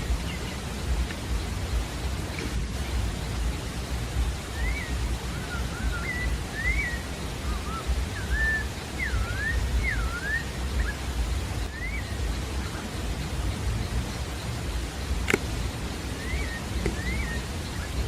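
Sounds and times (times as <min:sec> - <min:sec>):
steady hiss and low rumble: 0:00.0 - 0:18.0
bird singing whistled phrases: 0:04.5 - 0:12.8, 0:16.1 - 0:18.0.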